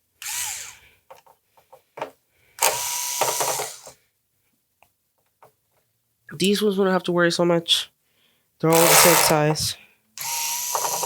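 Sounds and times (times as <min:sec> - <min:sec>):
screwdriver ratcheting: 0:02.6 - 0:03.9, 0:08.7 - 0:11.0.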